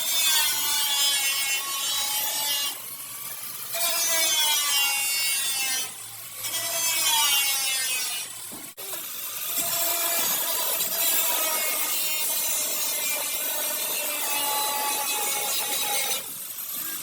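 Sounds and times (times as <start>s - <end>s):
angle grinder grinding metal: 0.0s - 17.0s.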